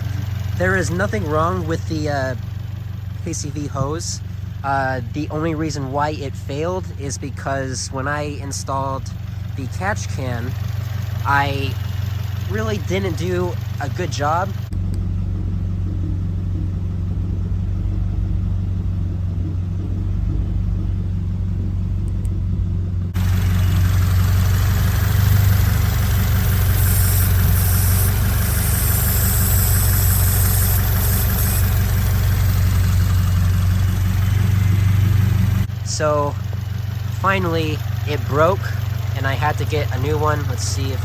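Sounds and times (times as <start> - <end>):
car engine idling: 0.0 - 41.0
rushing hiss: 23.2 - 33.8.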